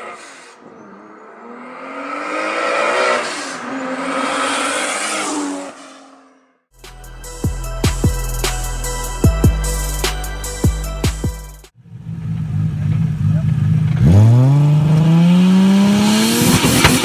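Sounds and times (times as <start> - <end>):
car engine accelerating: 0.0 - 6.6, 11.8 - 17.0
music with drum beats: 6.8 - 11.7.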